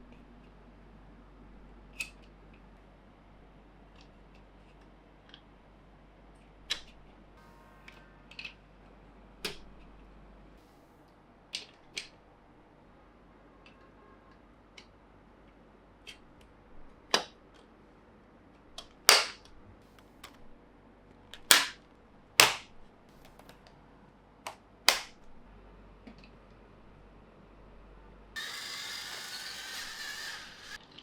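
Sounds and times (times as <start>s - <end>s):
plastic toy track clacking: 28.4s - 31.0s.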